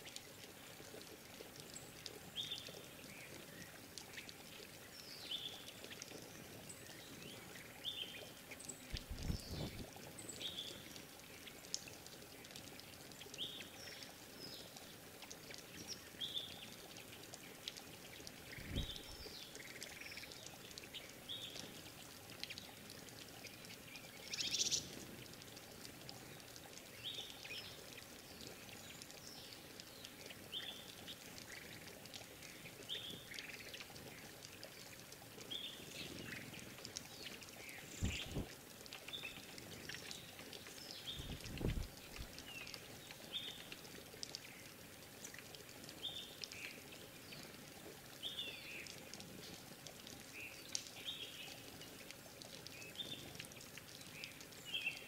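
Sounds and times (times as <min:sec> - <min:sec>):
birds chirping: 0:08.9 - 0:09.8, 0:37.6 - 0:38.5
wing flutter: 0:08.9 - 0:10.0, 0:18.5 - 0:19.3, 0:37.8 - 0:38.6, 0:41.2 - 0:42.4
low thumps: 0:38.0 - 0:38.5.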